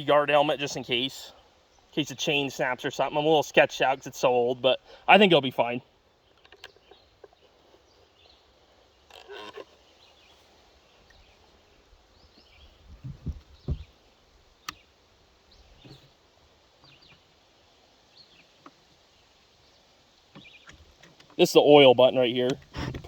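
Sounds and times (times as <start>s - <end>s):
low thumps: 12.9s - 14.0s.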